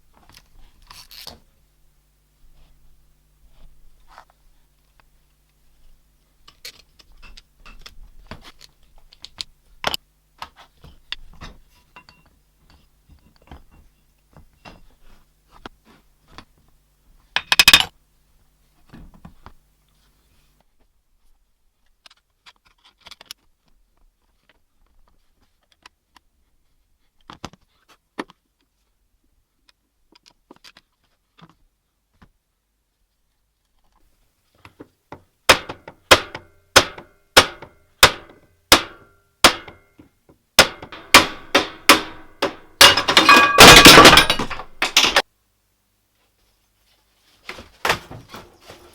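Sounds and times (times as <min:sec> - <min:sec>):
metal tools clinking on workbench: 0:11.9 - 0:12.3, 0:40.8 - 0:45.2
metal clatter: 0:40.6 - 0:45.2.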